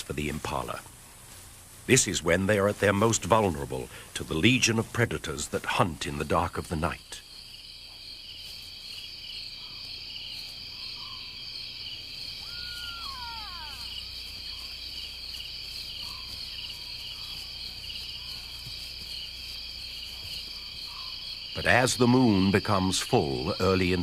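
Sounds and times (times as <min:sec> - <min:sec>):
crickets trilling: 0:01.9 - 0:24.0
downward gliding call: 0:12.4 - 0:14.1.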